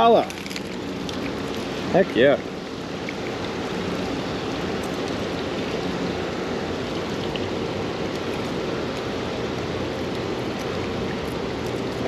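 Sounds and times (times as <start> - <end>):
flowing creek: 0.0 - 12.0
rain falling: 0.0 - 12.0.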